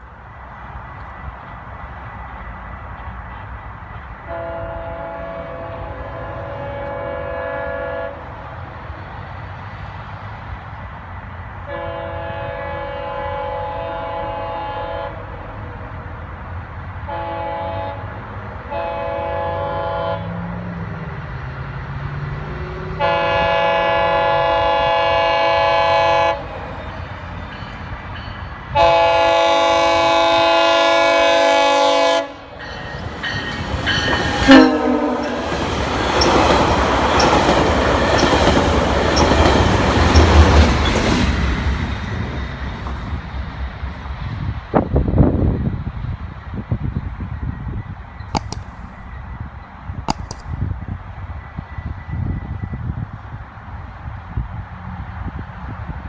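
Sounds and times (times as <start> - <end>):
train rumbling on track: 0.0 - 56.0
train horn blasts: 4.3 - 8.4, 11.7 - 15.4, 17.0 - 20.6, 22.4 - 26.8, 28.7 - 41.0.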